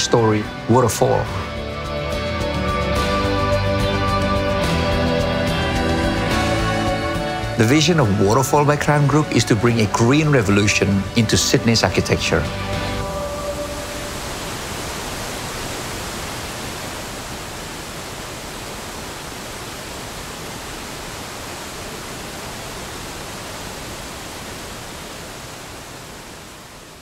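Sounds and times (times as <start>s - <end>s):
rush of falling water: 7.8s - 27.0s.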